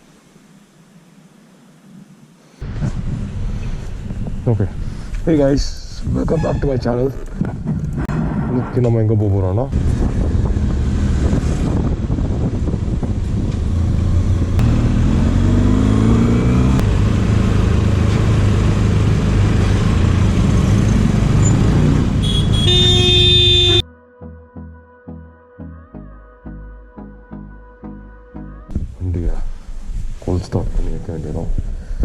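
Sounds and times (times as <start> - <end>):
road traffic engines: 2.6 - 9.0, 9.7 - 23.8
vehicle accelerating: 9.7 - 23.2
car horn: 22.2 - 23.9.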